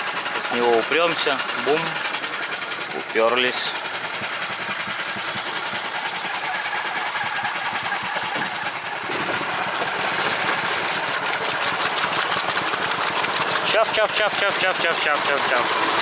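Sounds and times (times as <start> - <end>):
small engine knocking: 0.0 - 16.0.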